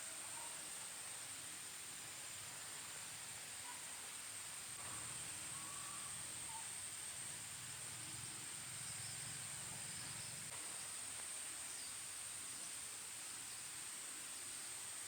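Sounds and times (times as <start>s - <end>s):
faint hiss: 0.0s - 15.0s
insects droning: 4.6s - 11.1s.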